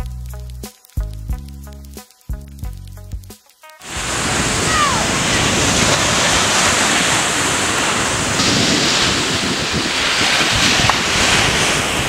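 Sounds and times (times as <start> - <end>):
surf breaking on beach: 3.8 - 12.0
wind buffeting microphone: 3.9 - 12.0.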